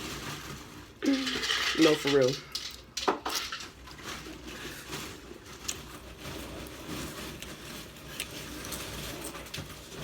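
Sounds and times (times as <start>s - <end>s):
person chewing food: 4.4s - 9.8s.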